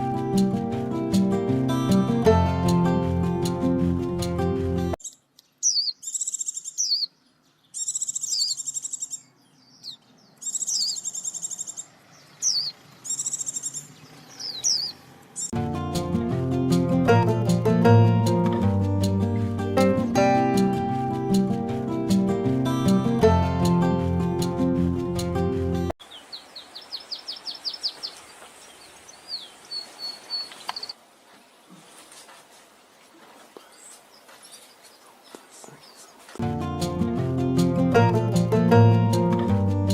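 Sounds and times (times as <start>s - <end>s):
guitar-led music: 0.0s - 5.0s, 15.6s - 25.9s, 36.4s - 39.9s
songbird whistle and buzzy trill: 5.0s - 15.6s.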